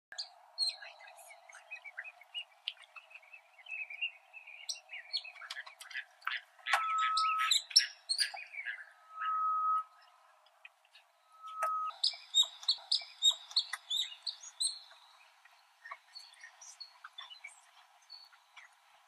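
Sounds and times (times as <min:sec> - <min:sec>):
birds chirping and trilling: 0:00.1 - 0:19.0
whistled bird note: 0:06.7 - 0:07.6, 0:08.2 - 0:10.0, 0:11.2 - 0:12.0.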